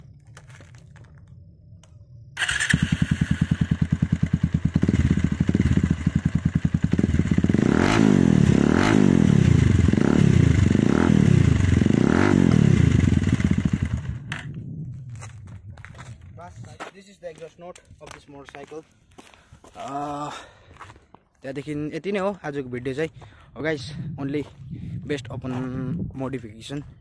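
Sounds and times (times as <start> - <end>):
motorcycle engine idling and revving: 0.1 - 16.8.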